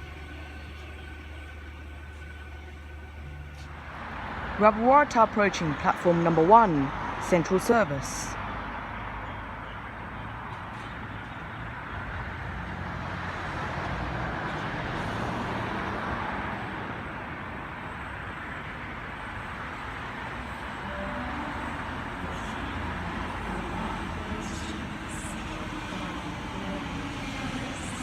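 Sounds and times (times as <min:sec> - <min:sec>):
electric train pulling in: 0:00.0 - 0:10.2, 0:11.5 - 0:28.0.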